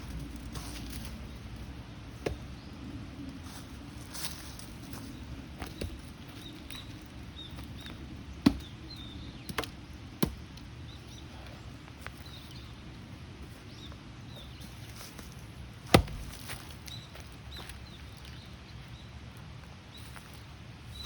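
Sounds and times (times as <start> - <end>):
axe chopping wood: 2.1 - 2.7, 7.6 - 10.6, 15.9 - 16.7.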